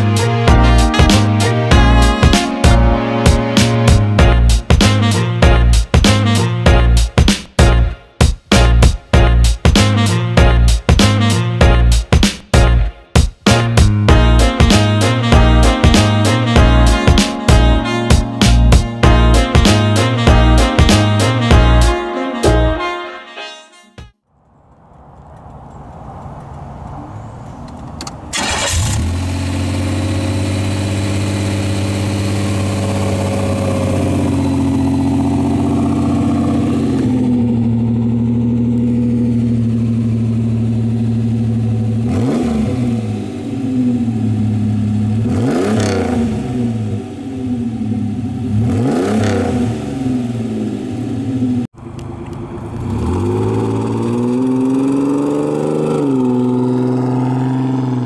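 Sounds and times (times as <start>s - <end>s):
car engine idling: 24.4s - 42.1s, 43.2s - 45.3s, 46.6s - 48.7s, 49.8s - 55.2s
engine revving: 24.7s - 58.0s.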